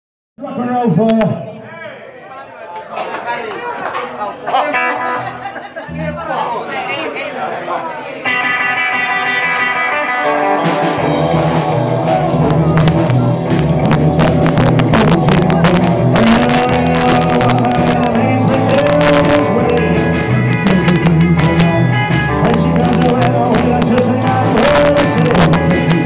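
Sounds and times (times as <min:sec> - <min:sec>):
live rock and roll band: 0:04.5 - 0:06.3, 0:08.2 - 0:26.0.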